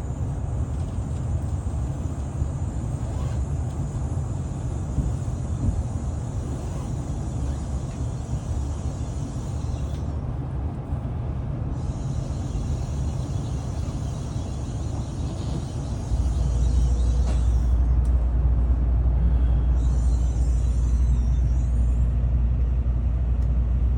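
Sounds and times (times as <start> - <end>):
train rumbling: 0.0 - 23.9
faint high squeaks: 12.5 - 18.0, 19.6 - 22.1.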